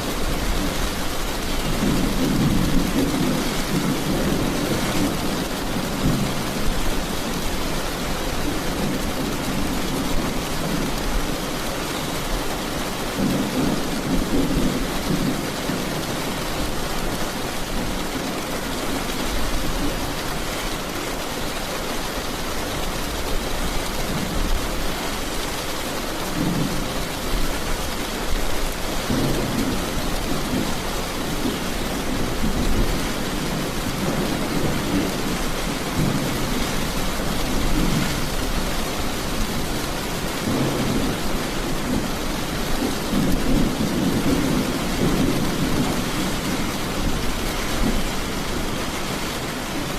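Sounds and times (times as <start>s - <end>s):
heavy rain: 0.0s - 49.9s.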